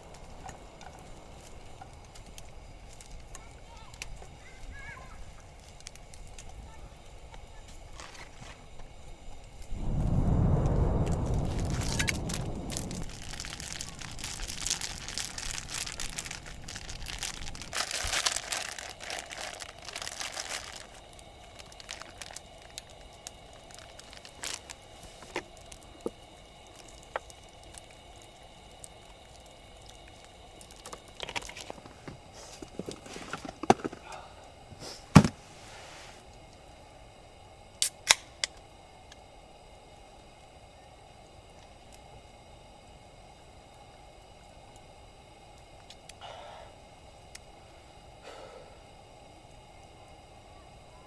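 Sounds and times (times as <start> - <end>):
wrapping crinkling and rustling: 7.7 - 8.7, 11.0 - 34.0.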